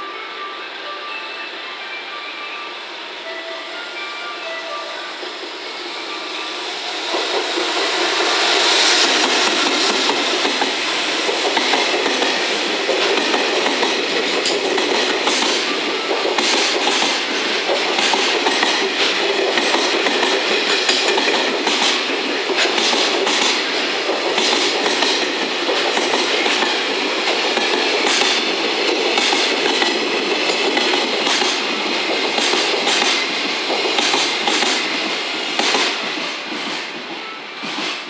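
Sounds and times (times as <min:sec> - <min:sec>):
wheels rumbling on rail: 0:05.3 - 0:38.0.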